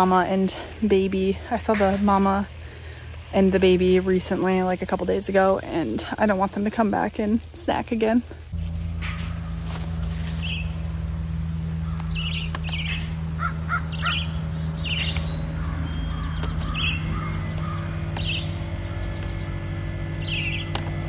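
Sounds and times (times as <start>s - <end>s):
steady low hum: 0.0s - 7.6s, 8.2s - 21.0s
birds calling: 8.9s - 21.0s.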